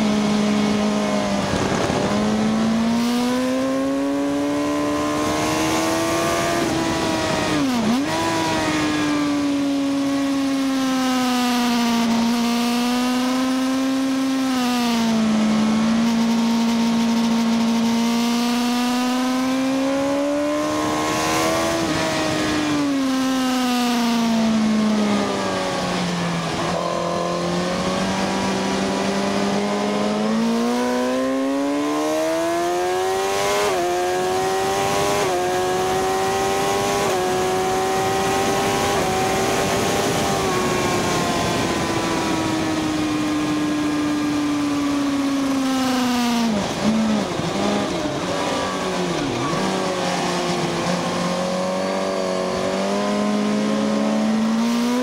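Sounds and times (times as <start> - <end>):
wind rushing over microphone: 0.0 - 10.0, 33.6 - 45.6
motorcycle engine at speed: 0.0 - 55.0.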